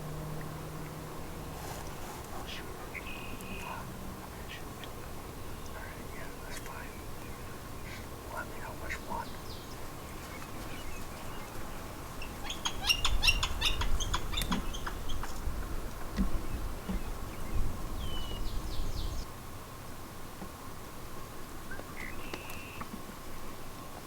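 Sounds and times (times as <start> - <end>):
small birds chirping: 0.4 - 15.5, 16.2 - 19.3.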